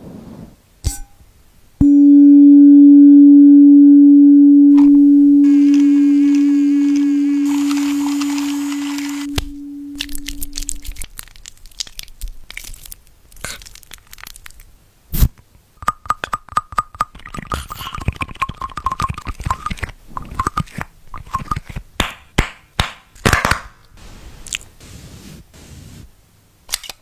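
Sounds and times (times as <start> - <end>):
dog chewing and crunching: 10.0 - 14.7.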